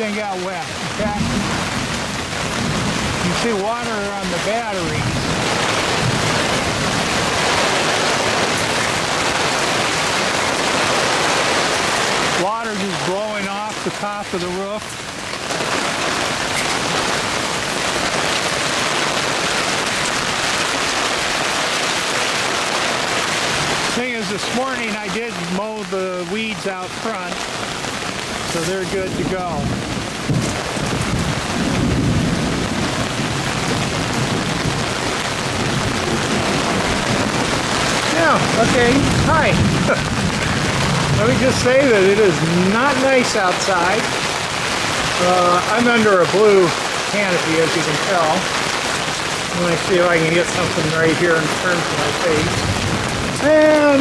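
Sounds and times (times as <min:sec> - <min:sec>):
deep thunder rumble: 0:00.0 - 0:14.5, 0:26.9 - 0:54.0
heavy rain: 0:00.0 - 0:54.0.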